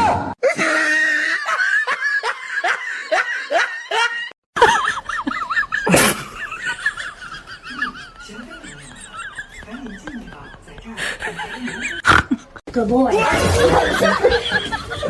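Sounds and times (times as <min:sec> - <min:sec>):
bursts of laughter: 0:00.4 - 0:15.0.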